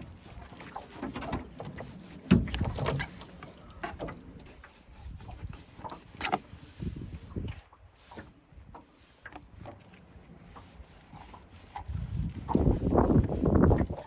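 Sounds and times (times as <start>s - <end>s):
wind on microphone: 4.9s - 5.8s, 6.5s - 8.8s, 11.1s - 14.0s.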